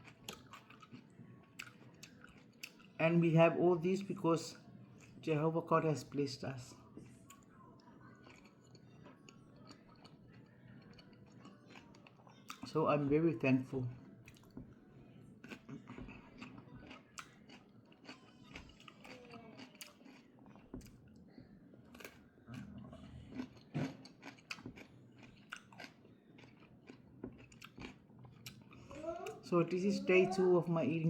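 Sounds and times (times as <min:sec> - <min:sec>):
person chewing food: 0:00.0 - 0:03.0, 0:04.9 - 0:05.2, 0:06.9 - 0:12.7, 0:13.9 - 0:29.4.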